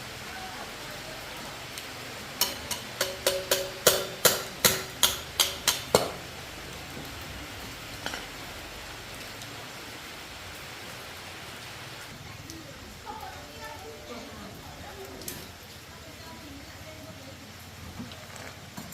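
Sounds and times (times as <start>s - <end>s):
hammer striking metal: 2.4s - 6.2s.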